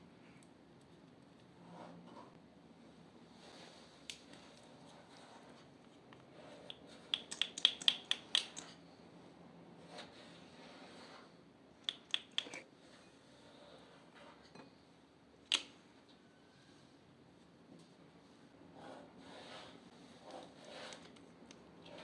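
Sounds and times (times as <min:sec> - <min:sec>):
slime clicking and popping: 0:07.2 - 0:08.7.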